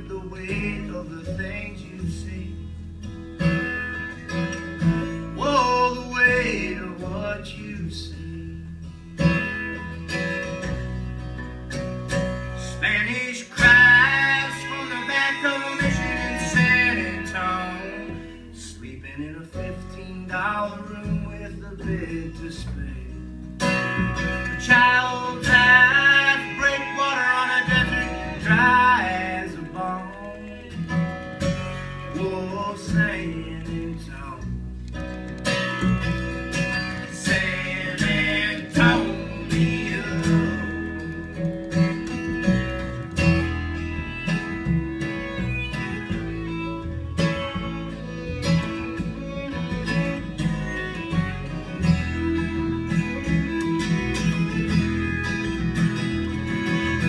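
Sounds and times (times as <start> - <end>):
bass line: 0.0 - 57.0
picked acoustic guitar: 0.0 - 57.0
fiddle: 8.8 - 57.0.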